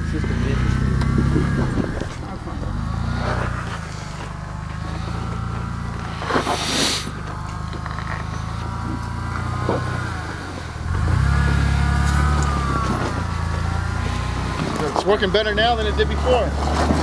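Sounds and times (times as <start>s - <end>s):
engine running at low revs: 0.0s - 17.0s
rushing noise: 6.1s - 7.2s.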